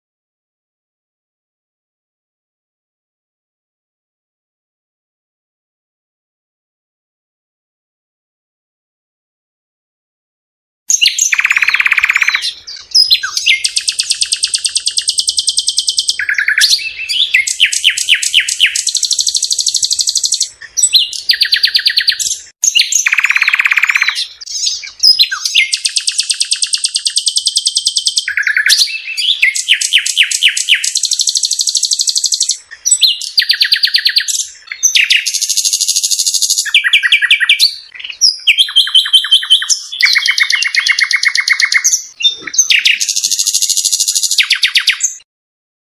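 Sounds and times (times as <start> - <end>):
bird singing trills: 10.9 - 45.2.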